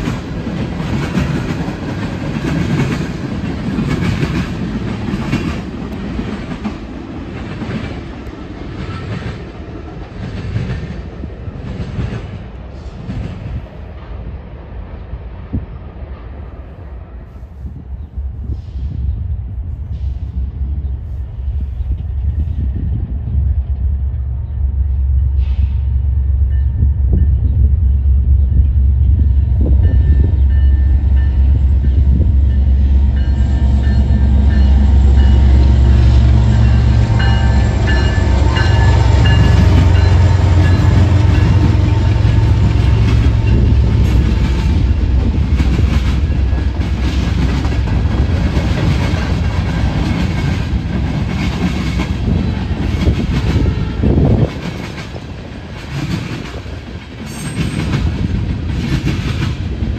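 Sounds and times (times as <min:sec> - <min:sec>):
deep locomotive engine rumble: 0:00.0 - 0:59.9.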